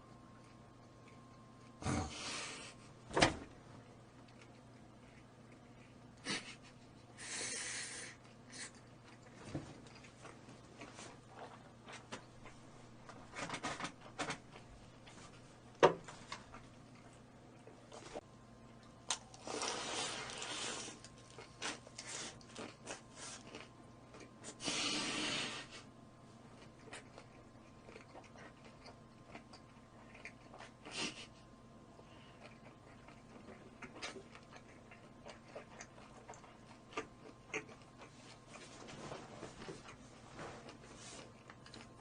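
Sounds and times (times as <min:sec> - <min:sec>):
chewing and biting food: 0:21.0 - 0:24.6, 0:26.5 - 0:31.0, 0:32.2 - 0:38.8, 0:40.6 - 0:42.0.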